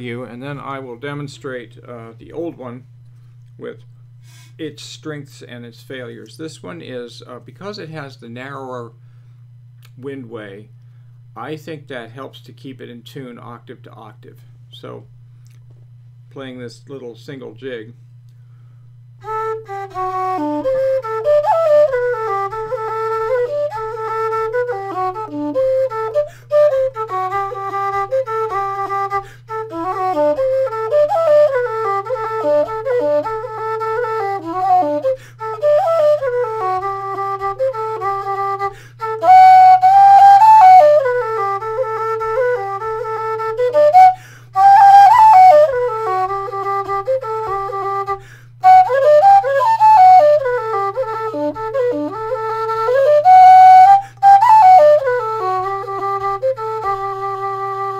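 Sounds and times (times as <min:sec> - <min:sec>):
low whistle playing a jig: 0:18.3 - 0:57.9.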